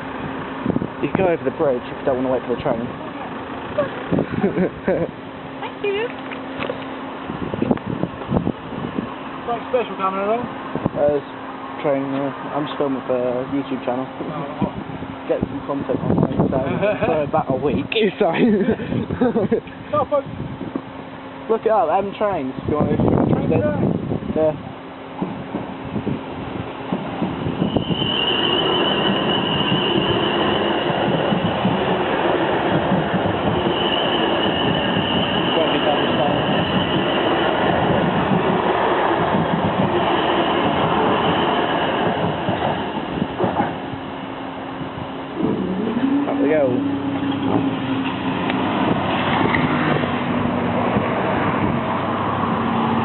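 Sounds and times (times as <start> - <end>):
vehicle engines humming: 0.0 - 22.5, 23.9 - 53.0
train rushing past: 20.0 - 53.0
thin high squeal: 27.6 - 30.9, 33.6 - 37.1.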